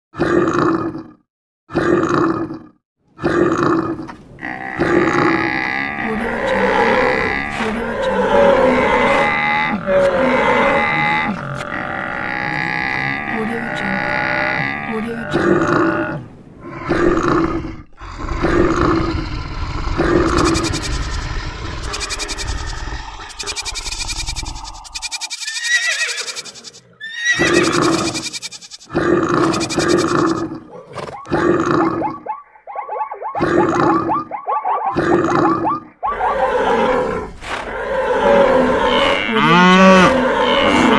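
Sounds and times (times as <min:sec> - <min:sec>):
animal growling call: 0:01.7 - 0:32.4, 0:33.3 - 0:40.9
cattle lowing and bellowing: 0:03.2 - 0:25.1, 0:34.9 - 0:40.9
animal call sound effects: 0:20.0 - 0:37.2.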